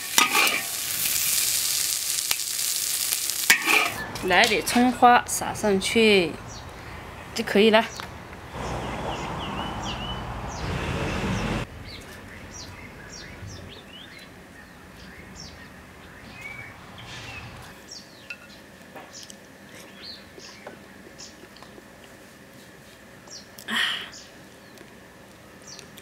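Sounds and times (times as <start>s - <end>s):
steady rushing noise: 4.0s - 13.7s
small birds chirping: 5.4s - 21.8s, 23.3s - 24.9s, 25.6s - 26.0s.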